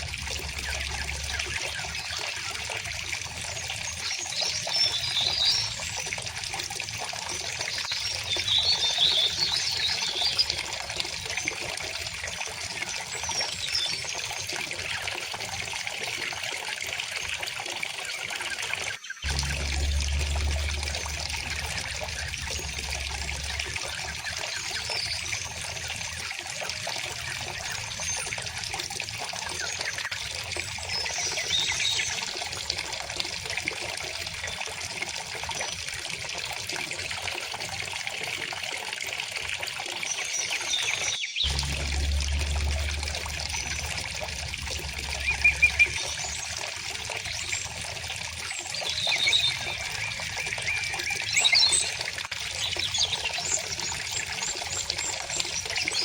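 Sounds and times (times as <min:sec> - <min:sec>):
river water flowing: 0:00.0 - 0:04.1, 0:19.3 - 0:29.0, 0:41.5 - 0:52.0
bird chirps: 0:40.5 - 0:47.7.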